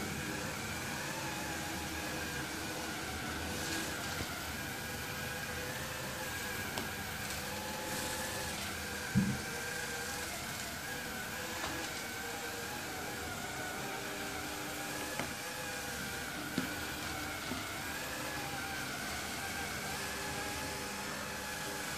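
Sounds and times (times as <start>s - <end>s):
robot vacuum motor whine: 0.0s - 21.9s
low thump: 9.2s - 9.5s.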